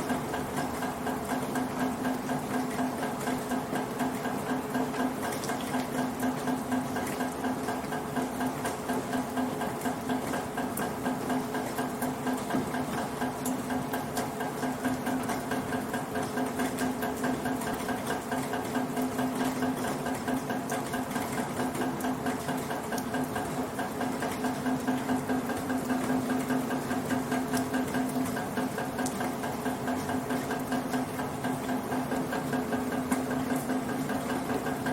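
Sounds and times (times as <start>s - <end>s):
rainwater pattering in gutter: 0.0s - 34.9s.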